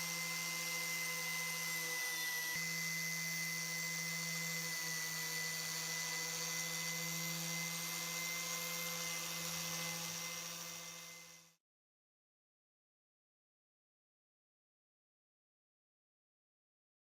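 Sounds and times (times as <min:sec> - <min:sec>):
small power tool whining: 0:00.0 - 0:11.6.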